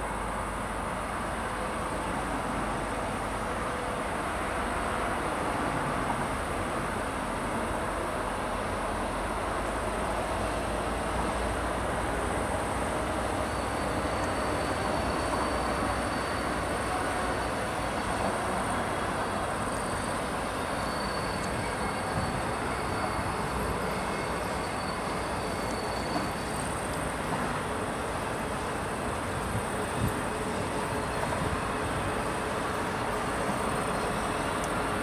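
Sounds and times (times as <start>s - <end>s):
freight train rumbling on rails: 0.0s - 35.0s
faint high whine: 11.2s - 35.0s.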